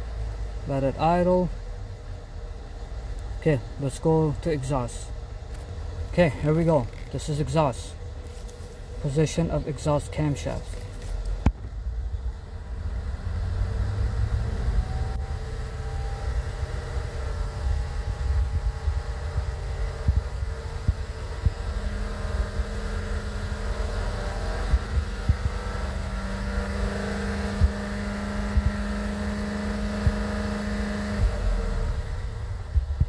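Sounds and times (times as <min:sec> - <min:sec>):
car engine running: 0:00.0 - 0:33.0
steady hum: 0:00.0 - 0:33.0.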